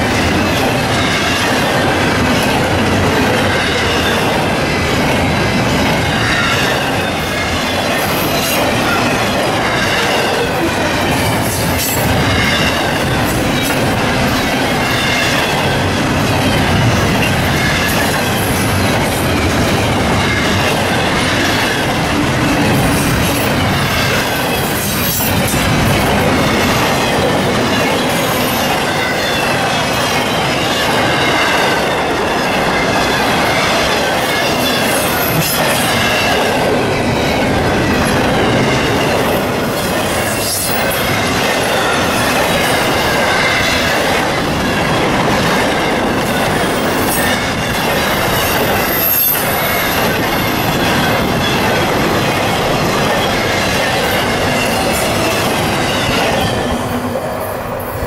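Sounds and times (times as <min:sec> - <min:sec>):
steel wheels rumbling on rail: 0:00.0 - 0:58.0.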